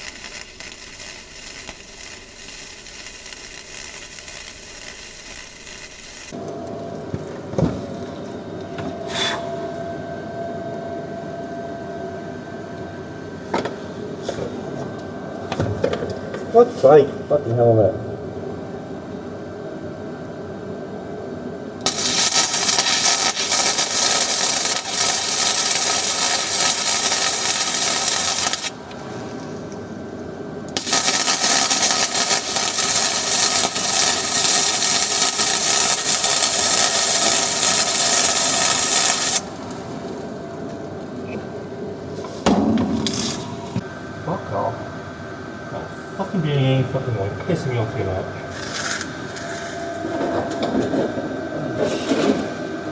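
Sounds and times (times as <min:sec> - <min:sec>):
welding arc noise: 0:00.0 - 0:06.4, 0:21.9 - 0:29.6, 0:30.8 - 0:40.8
background hum: 0:00.0 - 0:06.9.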